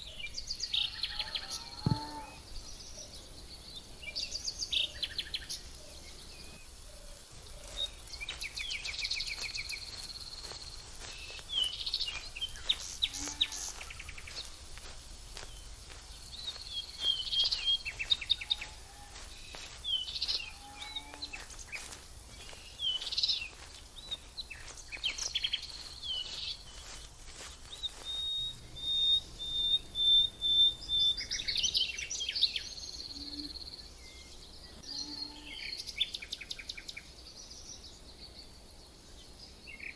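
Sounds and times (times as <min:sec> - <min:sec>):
songbirds chirping and trilling: 0:00.0 - 0:39.9
bird long rapid trill: 0:28.0 - 0:31.7.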